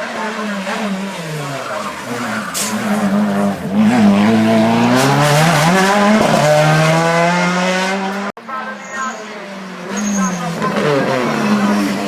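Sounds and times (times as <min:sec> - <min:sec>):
race car engine accelerating: 0:00.0 - 0:08.3.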